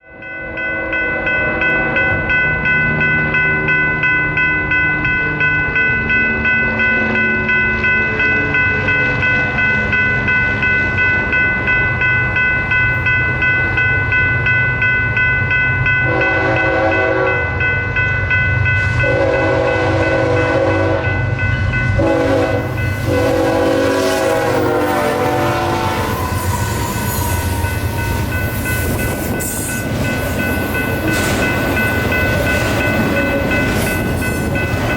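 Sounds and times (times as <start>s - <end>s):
railroad crossing bell ringing: 0.0s - 34.9s
train rumble: 0.5s - 34.9s
locomotive horn blasts: 16.1s - 17.5s, 19.0s - 21.2s, 22.0s - 26.6s.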